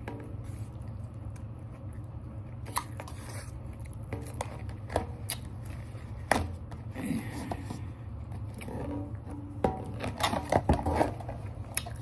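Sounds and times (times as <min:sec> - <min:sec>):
low steady hum: 0:00.0 - 0:12.0
person chewing food: 0:00.5 - 0:04.4, 0:05.3 - 0:05.8.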